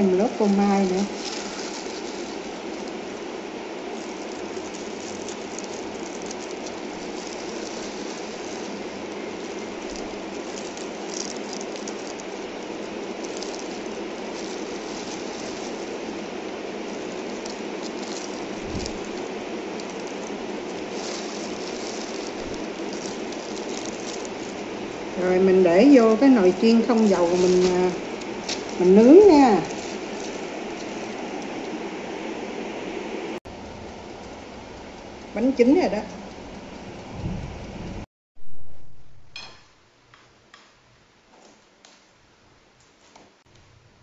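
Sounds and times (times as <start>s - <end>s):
plastic bag crinkling: 0.0s - 32.5s
steady rain falling: 0.0s - 38.0s.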